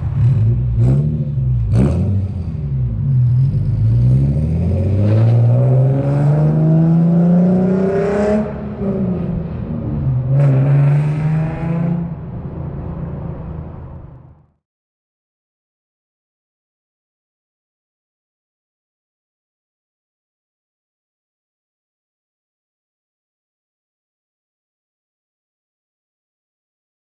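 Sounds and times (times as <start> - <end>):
car engine accelerating: 0.0 - 14.5.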